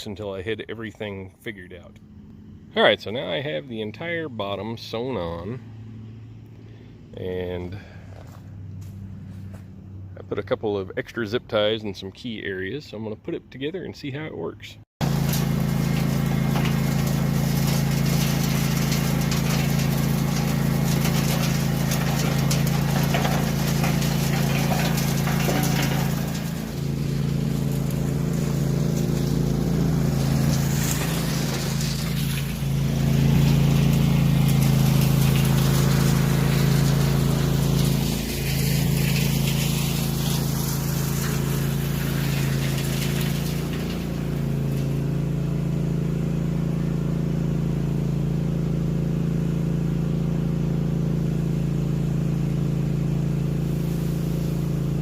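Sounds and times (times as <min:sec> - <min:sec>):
small engine running: 0:15.0 - 0:55.0.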